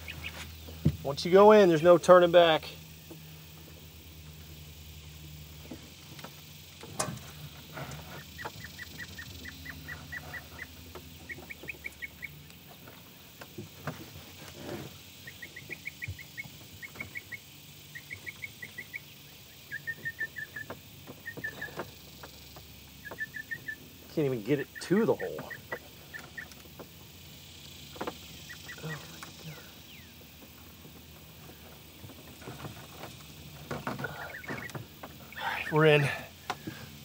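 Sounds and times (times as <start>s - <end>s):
bird chirping: 0.0s - 2.3s, 7.9s - 13.0s, 15.1s - 30.3s, 32.4s - 36.2s.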